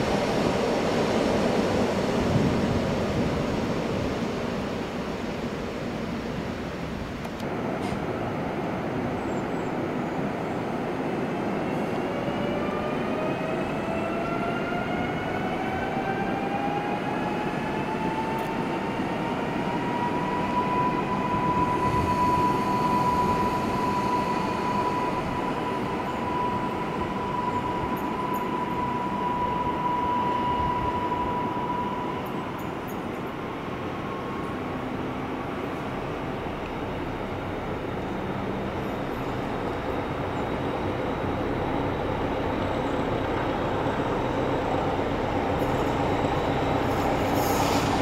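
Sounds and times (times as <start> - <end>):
train running gear rumble: 17.1 - 48.0.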